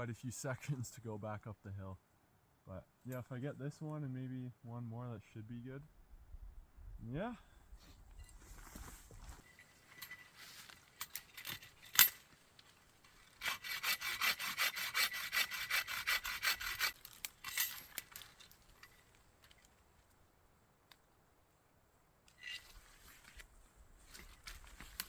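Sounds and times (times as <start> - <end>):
hand saw cutting wood: 13.3 - 17.0.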